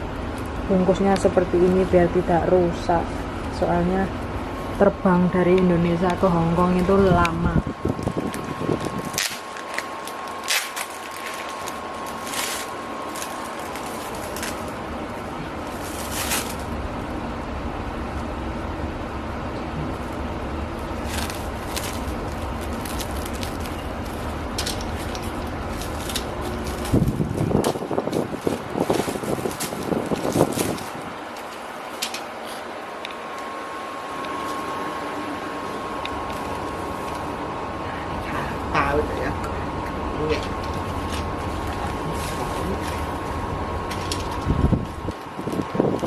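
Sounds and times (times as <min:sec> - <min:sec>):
steady low rumble: 0:00.0 - 0:46.0
wrapping crinkling: 0:07.9 - 0:17.1, 0:19.9 - 0:32.8, 0:35.6 - 0:37.4, 0:40.4 - 0:46.0
packaging rustling: 0:08.0 - 0:16.8, 0:20.0 - 0:32.7, 0:40.4 - 0:46.0.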